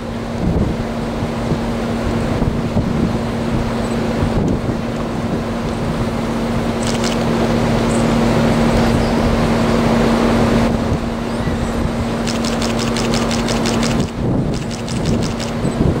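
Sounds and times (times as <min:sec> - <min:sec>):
steady engine hum: 0:00.0 - 0:16.0
wind buffeting microphone: 0:00.1 - 0:07.0, 0:10.4 - 0:16.0.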